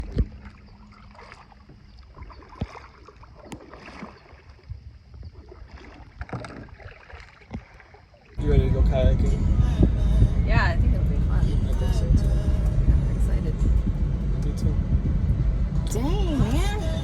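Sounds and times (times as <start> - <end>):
paddle knocking against hull: 0.0 - 8.0
quiet water sounds: 0.0 - 17.0.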